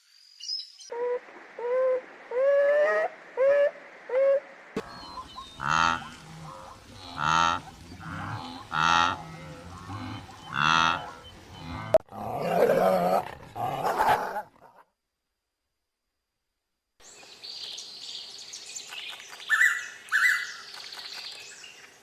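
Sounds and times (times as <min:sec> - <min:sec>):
animal calling: 0:00.9 - 0:14.5.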